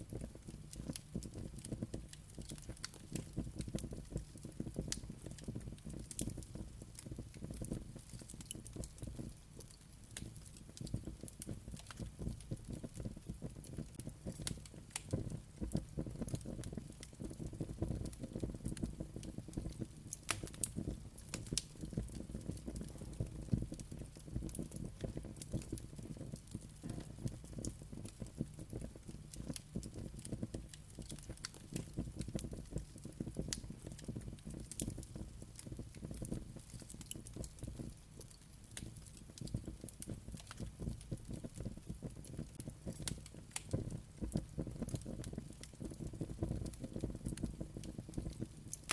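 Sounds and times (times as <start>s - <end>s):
fire crackling and snapping: 0.0s - 48.9s
flames rumbling: 0.1s - 48.9s
sharp fire pops: 10.1s - 48.9s.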